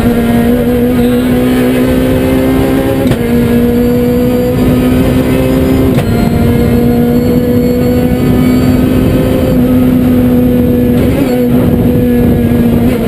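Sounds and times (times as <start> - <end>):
car engine at high revs: 0.0 - 13.0
tyre and road noise: 0.0 - 13.0.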